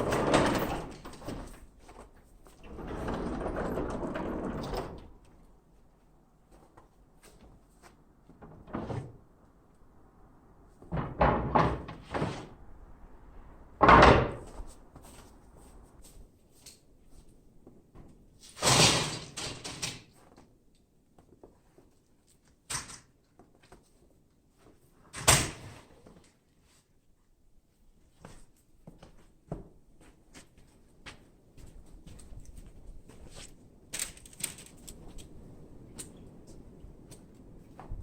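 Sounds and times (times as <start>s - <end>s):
knocks and slams: 10.9s - 12.5s, 13.8s - 14.7s.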